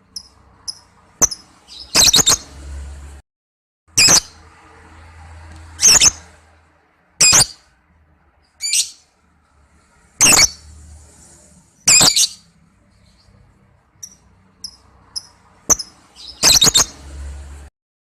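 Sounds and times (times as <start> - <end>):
bird shrill chirps: 0.2 - 2.5, 5.8 - 6.3, 7.2 - 7.7, 8.6 - 9.0, 10.2 - 10.6, 11.8 - 13.3, 14.0 - 17.0.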